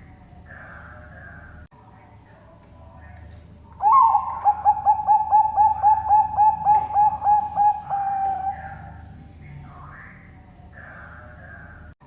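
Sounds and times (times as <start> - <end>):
dove cooing: 3.8 - 9.0.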